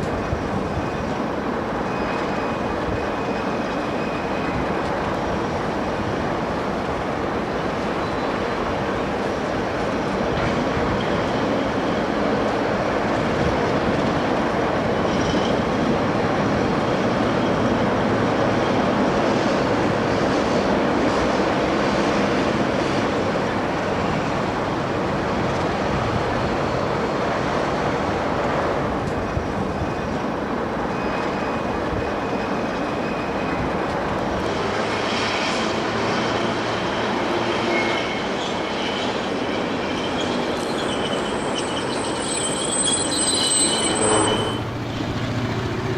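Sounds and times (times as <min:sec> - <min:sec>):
locomotive engine and wheels rumbling: 0:00.0 - 0:45.9
high wheel squeal: 0:01.8 - 0:04.8, 0:15.0 - 0:15.8, 0:34.9 - 0:45.9.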